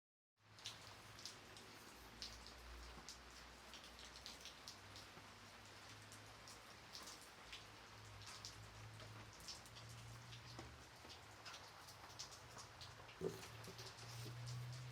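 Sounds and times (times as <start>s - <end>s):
light rain hissing: 0.4s - 14.9s
raindrops ticking: 0.4s - 14.9s.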